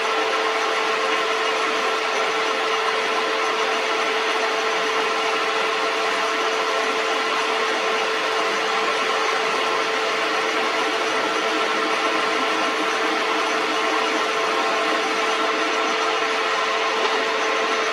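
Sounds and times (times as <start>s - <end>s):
metal lathe humming: 0.0s - 17.9s.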